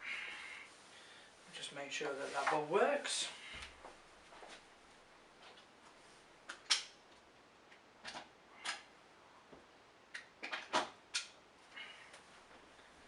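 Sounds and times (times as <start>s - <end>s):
plastic parts clicking and knocking: 10.1s - 11.4s.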